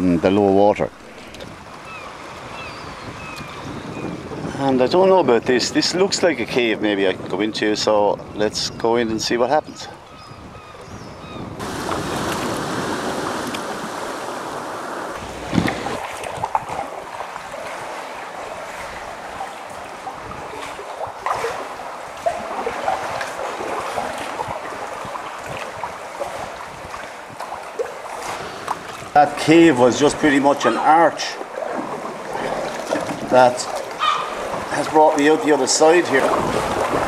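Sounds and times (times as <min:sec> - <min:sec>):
water lapping around kayak: 0:00.0 - 0:08.5, 0:09.9 - 0:37.0
wind on microphone: 0:00.5 - 0:30.3, 0:31.7 - 0:37.0
water splashes: 0:11.6 - 0:37.0.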